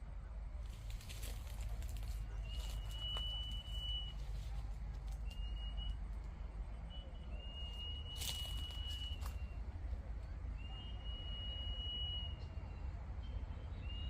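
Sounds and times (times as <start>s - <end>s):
steady low rumble: 0.0s - 13.6s
bird whistling: 2.4s - 4.2s, 6.9s - 9.6s.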